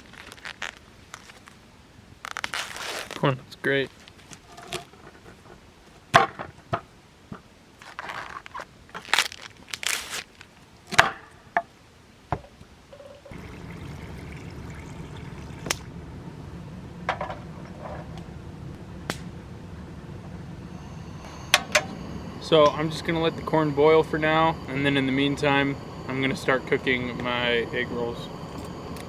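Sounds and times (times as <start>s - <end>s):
camp stove burner rushing: 20.4s - 29.0s.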